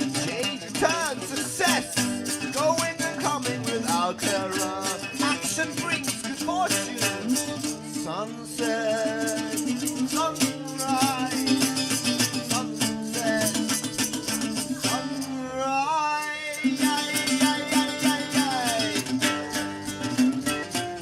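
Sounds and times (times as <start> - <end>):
strummed guitar: 0.0 - 21.0
shaker rattle: 9.2 - 15.3.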